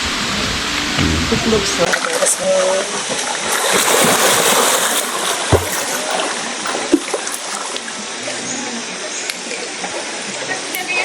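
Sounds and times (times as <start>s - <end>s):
water rushing and splashing: 0.7s - 10.5s.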